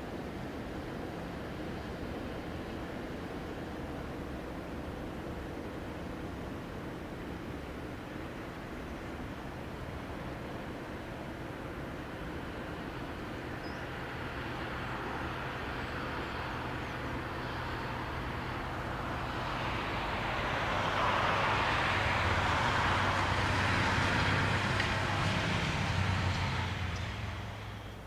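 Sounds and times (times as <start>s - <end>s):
passing vehicle rushing: 19.2s - 28.0s.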